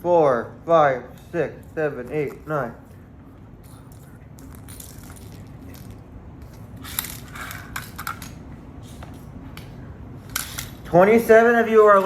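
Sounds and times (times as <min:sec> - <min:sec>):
low steady hum: 0:00.0 - 0:12.0
toys clicking and rustling: 0:03.7 - 0:08.4.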